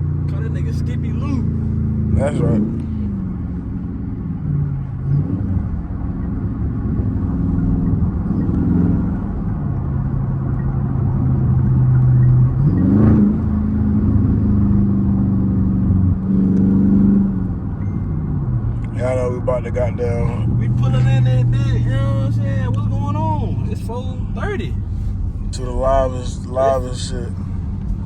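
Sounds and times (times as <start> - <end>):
car engine revving from inside: 0.5 - 17.7, 18.8 - 28.0.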